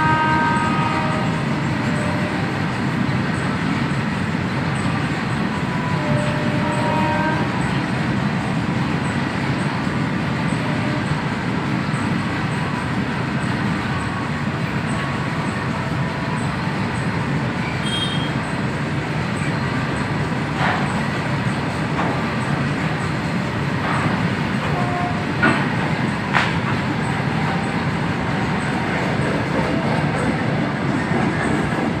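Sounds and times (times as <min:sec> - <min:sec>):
freight train wheels rumbling: 0:00.0 - 0:32.0
wheels clicking over rail joints: 0:19.4 - 0:32.0.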